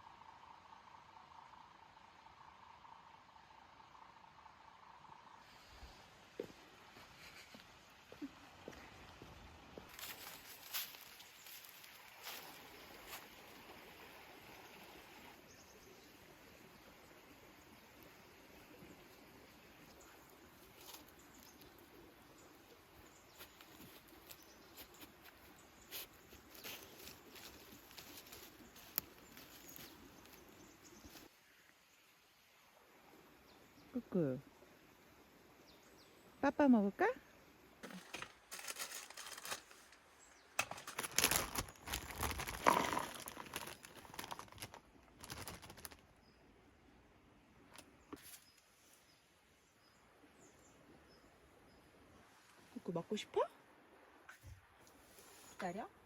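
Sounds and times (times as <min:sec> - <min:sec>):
rustles: 0:09.9 - 0:13.8, 0:19.9 - 0:21.9, 0:23.0 - 0:31.4, 0:37.8 - 0:46.2, 0:54.3 - 0:55.9
plastic packaging rustling: 0:37.8 - 0:40.0, 0:40.6 - 0:46.1.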